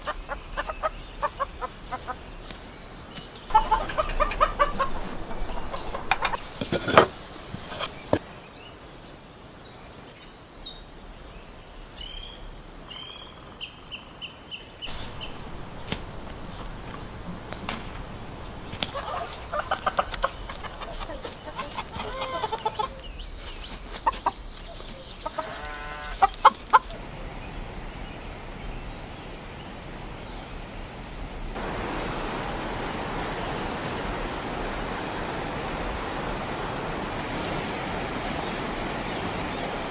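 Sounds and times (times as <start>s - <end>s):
chickens clucking: 0.0s - 8.2s, 14.9s - 30.5s
running water rushing: 0.0s - 8.5s, 14.9s - 39.9s.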